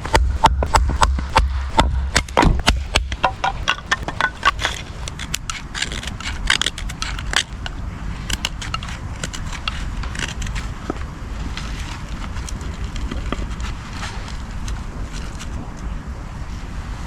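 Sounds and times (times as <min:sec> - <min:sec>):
sticks snapping and crunching: 0:00.0 - 0:15.9
wind rumble on microphone: 0:00.0 - 0:17.0.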